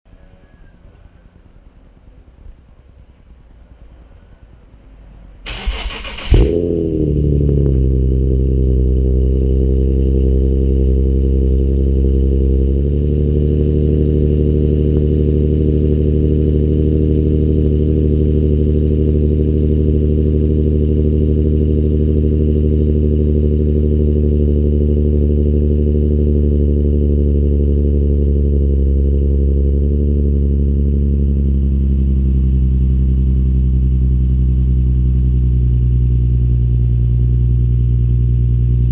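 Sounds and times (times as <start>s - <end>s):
car engine starting and idling: 0.8s - 38.9s
car engine cranking: 5.4s - 8.4s.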